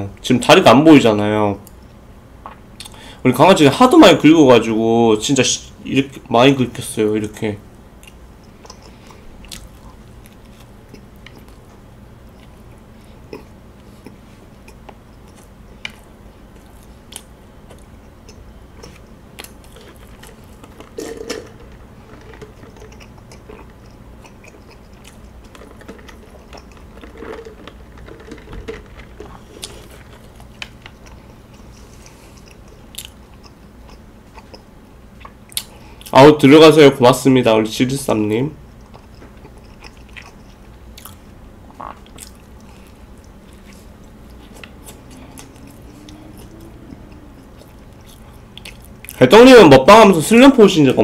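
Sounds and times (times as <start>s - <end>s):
chewing and biting toast: 8.0s - 36.1s, 38.6s - 49.2s
small crunches and clicks: 13.3s - 35.7s.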